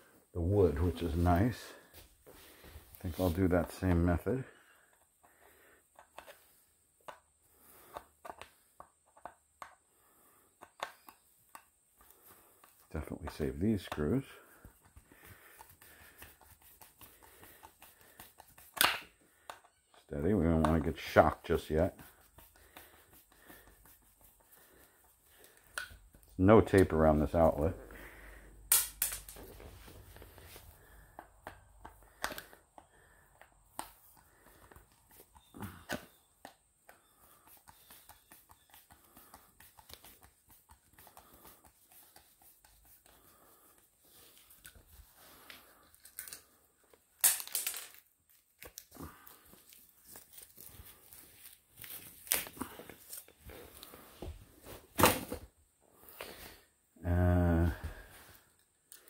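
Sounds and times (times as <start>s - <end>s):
clicks and knocks of handling: 5.9s - 6.4s, 7.9s - 9.8s, 10.6s - 21.6s.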